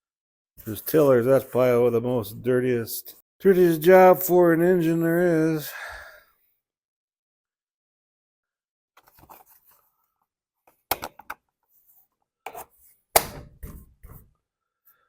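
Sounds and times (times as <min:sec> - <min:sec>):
parts knocking on work surface: 0:13.2 - 0:14.3.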